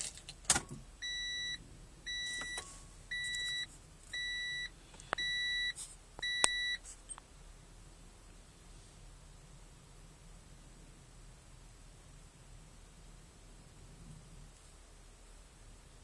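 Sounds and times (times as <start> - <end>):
car warning chime beeping: 1.0 - 6.8.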